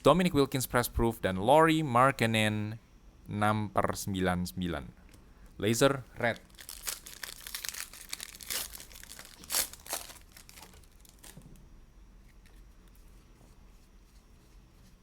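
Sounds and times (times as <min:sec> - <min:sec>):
faint handling sounds: 0:06.2 - 0:15.0
foil wrapper tearing and crinkling: 0:06.4 - 0:11.5.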